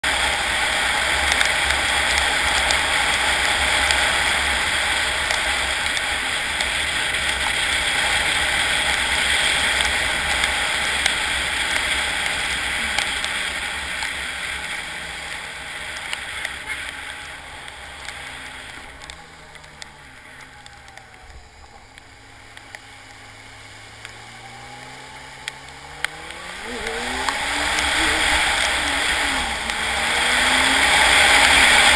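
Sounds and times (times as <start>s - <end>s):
faint motorcycle engine revving: 0.0s - 31.9s
rushing creek water: 21.4s - 31.9s.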